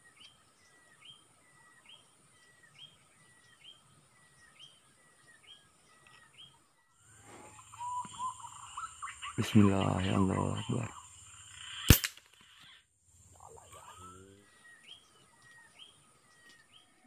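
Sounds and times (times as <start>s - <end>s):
bird whistle call sweeping up: 7.4s - 9.0s.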